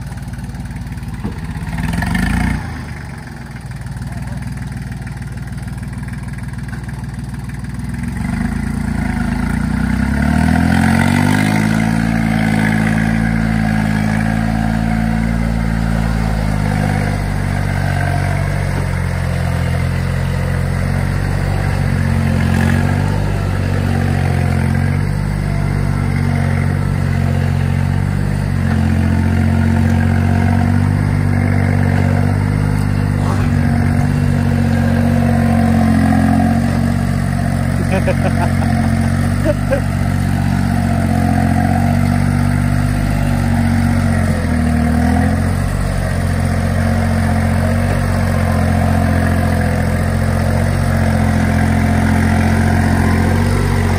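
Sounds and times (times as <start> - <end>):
tractor diesel engine revving: 0.0 - 53.9.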